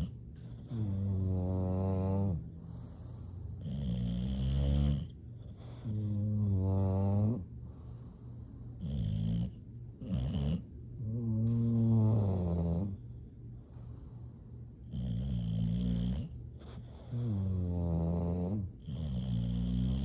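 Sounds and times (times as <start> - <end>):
dog breathing: 0.0 - 20.0
dog snoring: 0.0 - 20.0.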